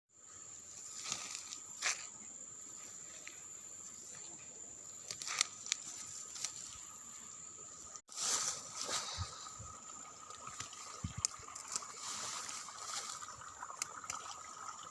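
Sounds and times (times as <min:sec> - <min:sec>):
insects droning high-pitched: 0:00.1 - 0:14.9
rustles and snaps: 0:05.0 - 0:06.7.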